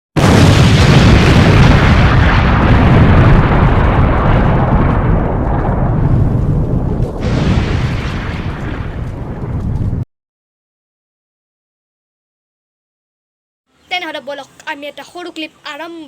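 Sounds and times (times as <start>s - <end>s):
loud deep rumbling: 0.2s - 10.1s.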